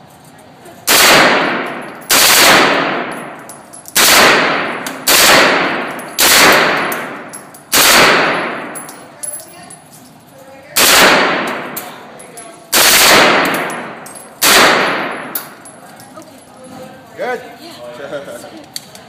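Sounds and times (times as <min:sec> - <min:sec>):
gunshots echoing indoors: 0:00.8 - 0:09.1, 0:10.8 - 0:12.1, 0:12.7 - 0:15.7.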